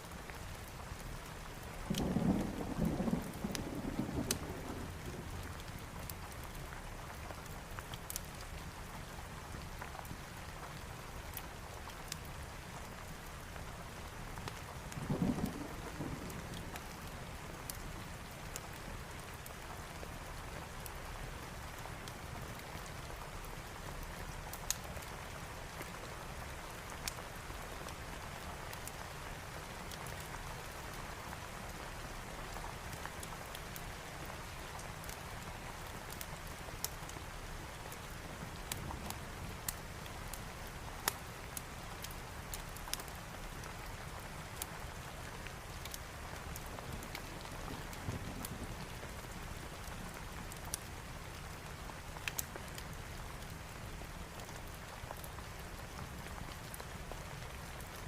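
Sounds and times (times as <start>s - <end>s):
heavy rain: 0.0s - 58.0s
low rolls of thunder: 1.9s - 5.6s, 14.9s - 17.1s, 46.9s - 49.6s
fireplace crackling: 32.6s - 58.0s.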